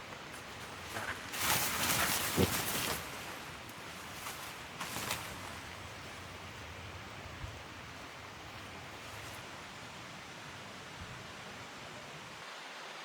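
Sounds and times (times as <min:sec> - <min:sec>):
small crackles: 0:00.0 - 0:06.3
rustling and crinkling: 0:00.0 - 0:06.8
steady background hiss: 0:00.0 - 0:13.0.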